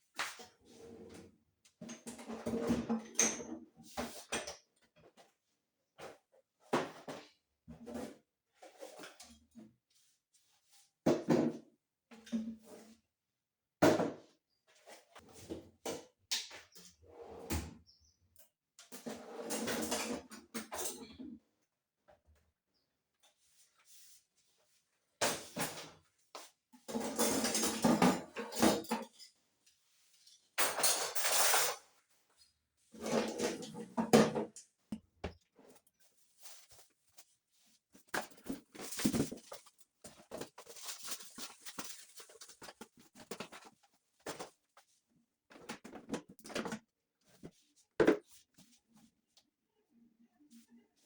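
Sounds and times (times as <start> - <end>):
household objects clattering: 26.9 - 29.4, 33.0 - 36.8, 37.9 - 44.6.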